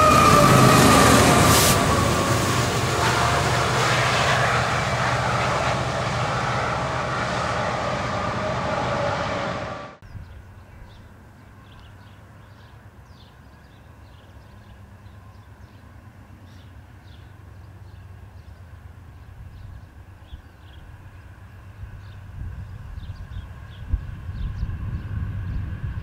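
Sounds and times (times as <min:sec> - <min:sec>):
steady low rumble: 0:00.0 - 0:10.5
loud passing train: 0:00.0 - 0:26.0.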